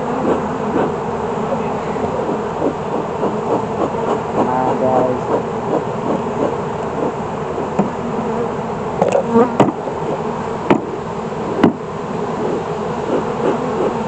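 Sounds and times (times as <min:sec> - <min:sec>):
honeybees buzzing: 0:00.0 - 0:14.0
sharp knocks: 0:09.0 - 0:09.8, 0:10.7 - 0:10.9, 0:11.6 - 0:11.8.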